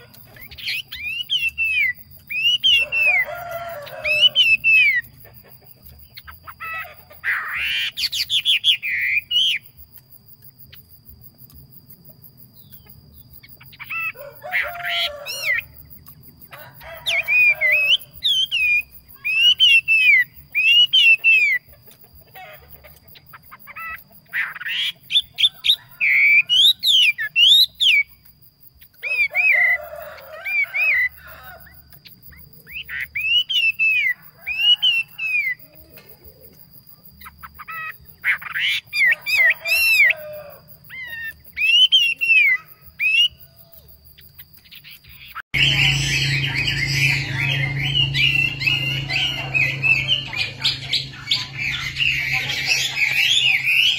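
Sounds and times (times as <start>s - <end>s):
songbird whistling: 0.4s - 3.2s, 17.4s - 21.6s.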